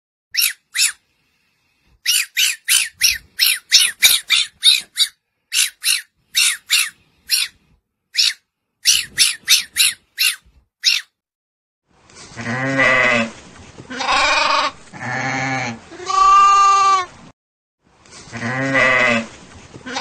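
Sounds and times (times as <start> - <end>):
fox yipping: 0.4 - 1.0, 2.0 - 7.6, 8.2 - 11.1.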